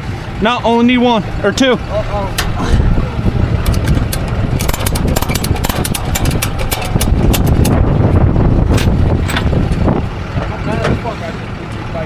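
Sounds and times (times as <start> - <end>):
truck engine idling: 0.0 - 12.0
rapid sharp clicks: 3.6 - 7.8.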